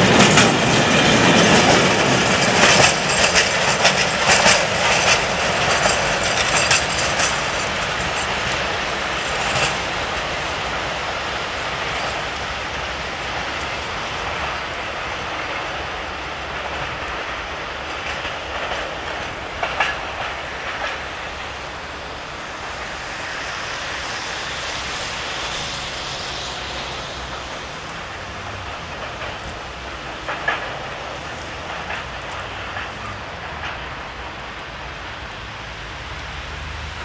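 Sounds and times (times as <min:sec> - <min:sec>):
wheels clacking over rail joints: 0:00.0 - 0:37.0
wheels rumbling on rail: 0:00.0 - 0:37.0.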